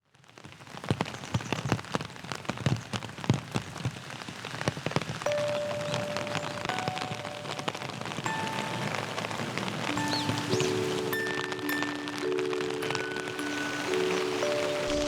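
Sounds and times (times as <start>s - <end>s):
large raindrops tapping: 0.0s - 15.0s
rain pattering: 0.0s - 15.0s
held musical note: 5.3s - 15.0s.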